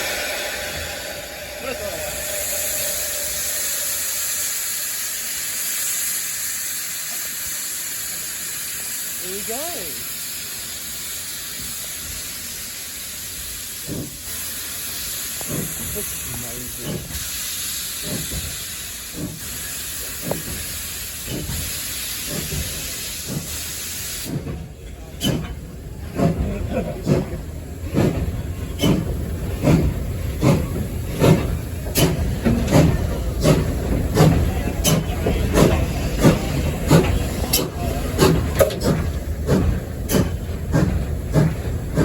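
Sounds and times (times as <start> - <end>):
steam locomotive hissing and chuffing: 0.0 - 42.0.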